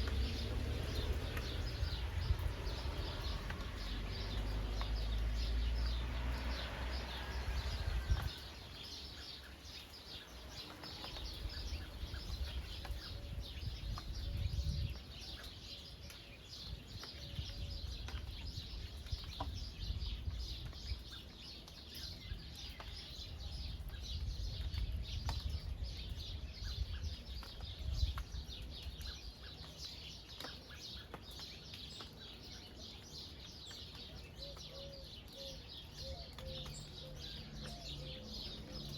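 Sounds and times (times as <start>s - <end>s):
rain falling on a field: 0.0s - 38.9s
birds calling: 25.6s - 38.9s.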